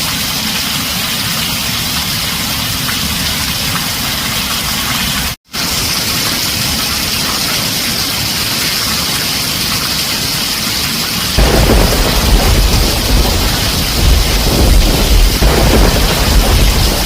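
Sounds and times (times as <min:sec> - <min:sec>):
heavy rain on a tin roof: 0:00.0 - 0:17.0
deep thunder rumble: 0:11.4 - 0:17.0.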